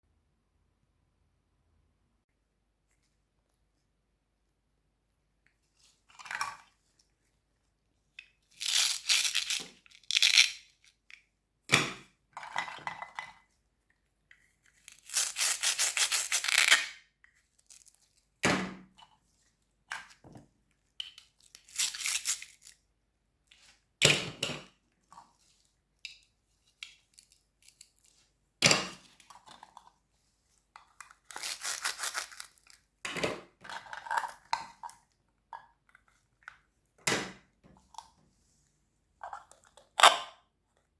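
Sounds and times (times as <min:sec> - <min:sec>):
crisp crunches of cutting vegetables: 0:14.9 - 0:17.0, 0:31.2 - 0:32.9.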